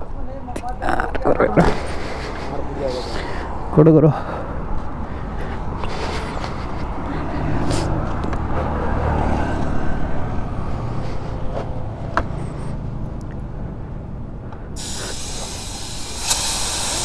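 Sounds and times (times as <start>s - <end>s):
low vehicle rumble: 1.0s - 17.0s
tyre inflator hissing air: 14.8s - 17.0s.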